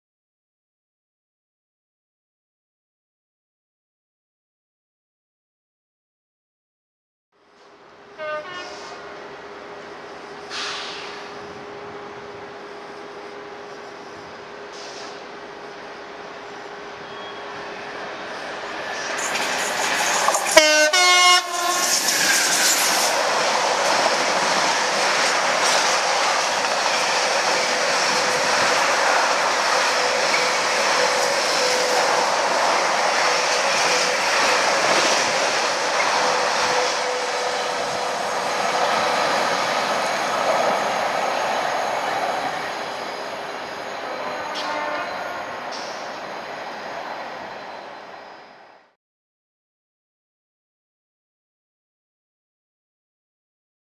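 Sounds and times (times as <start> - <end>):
locomotive horn: 8.2 - 9.0, 20.5 - 22.0, 44.2 - 45.6.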